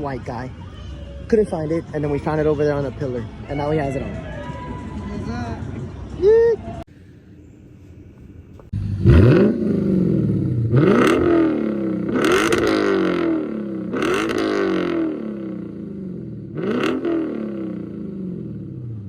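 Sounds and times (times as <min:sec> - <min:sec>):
car engine starting and revving: 0:08.7 - 0:19.0.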